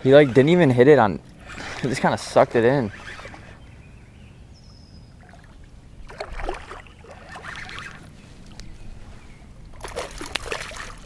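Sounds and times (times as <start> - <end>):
water splashing against boat: 0.0 - 3.6, 5.1 - 11.0
low steady rumble: 2.4 - 11.0.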